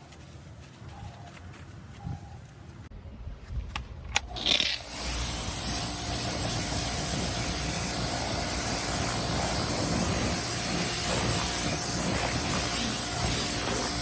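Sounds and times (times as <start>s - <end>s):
motor humming: 4.3s - 14.0s.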